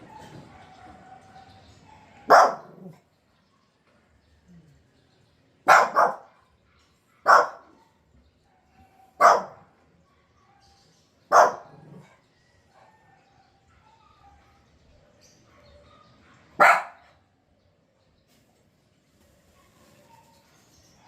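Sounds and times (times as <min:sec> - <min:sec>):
dog barking: 0:00.1 - 0:03.1, 0:05.6 - 0:17.3.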